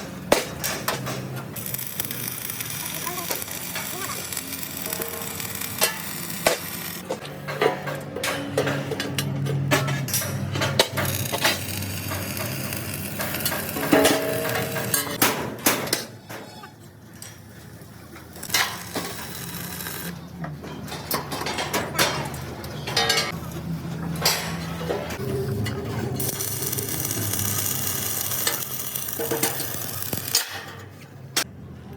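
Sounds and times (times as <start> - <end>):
metal clanks and knocks: 5.8 - 17.4, 20.4 - 26.3, 28.4 - 31.5.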